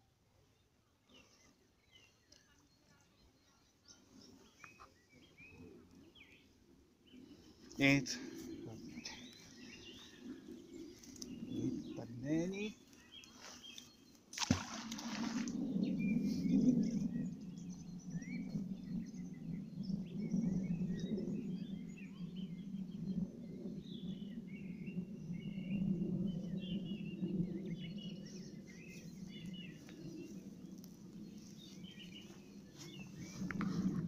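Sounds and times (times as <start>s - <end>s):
small birds chirping: 0.9s - 24.7s, 26.4s - 34.0s.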